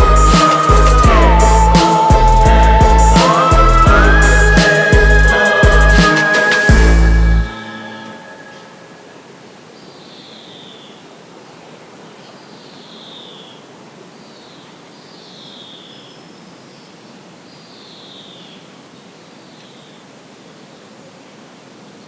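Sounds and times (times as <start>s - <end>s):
bird calling downward notes: 0.0s - 9.2s
steady outdoor hiss: 0.0s - 22.0s.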